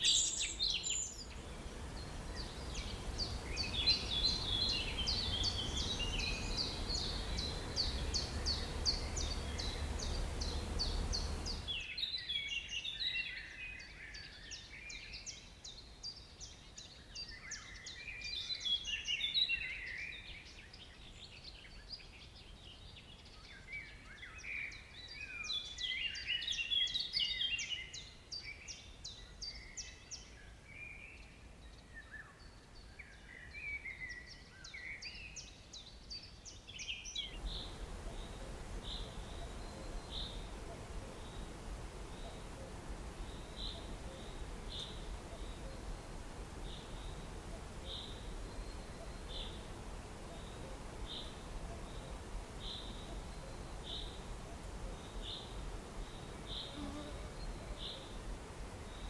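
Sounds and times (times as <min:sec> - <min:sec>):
bird chirping and twittering: 0:00.0 - 0:13.4, 0:36.8 - 0:54.3
steady background hiss: 0:00.0 - 0:59.0.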